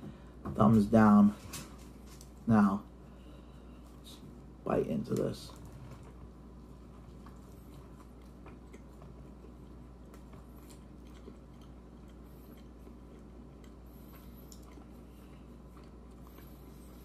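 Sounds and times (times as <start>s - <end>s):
person chewing: 5.7s - 17.0s.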